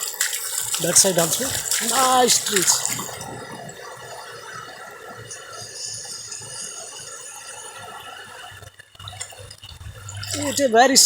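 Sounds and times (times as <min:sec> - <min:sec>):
waves washing onto beach: 0:00.0 - 0:07.2.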